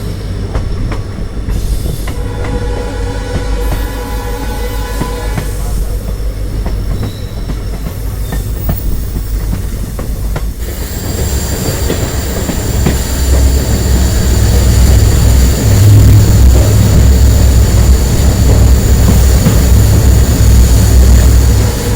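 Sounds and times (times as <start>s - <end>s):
train wheels rumbling: 0.0s - 21.9s.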